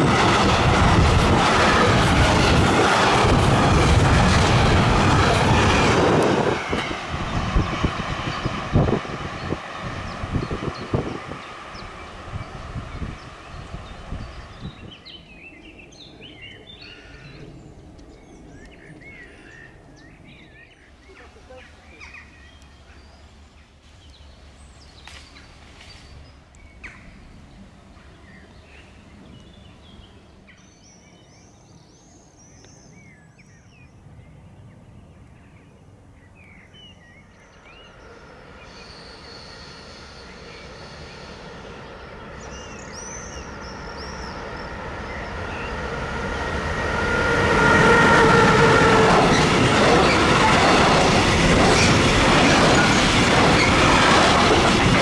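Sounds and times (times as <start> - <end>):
locomotive whine: 0.0 - 17.2, 37.2 - 55.0
wagons rumbling and rattling past: 47.2 - 55.0.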